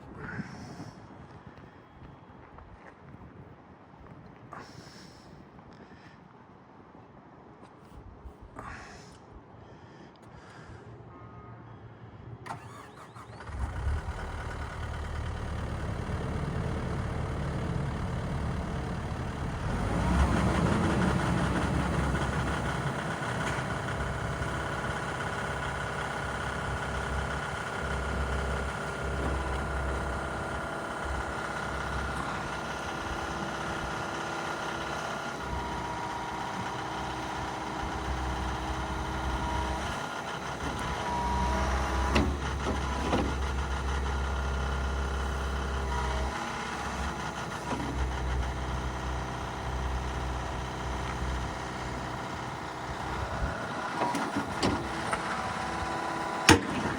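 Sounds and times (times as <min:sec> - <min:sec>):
excavator diesel engine running: 0:12.4 - 0:56.9.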